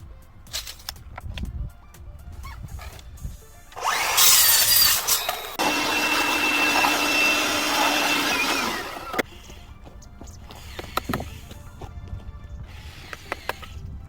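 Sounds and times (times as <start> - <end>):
power tool whining: 3.7 - 11.9, 12.6 - 13.8.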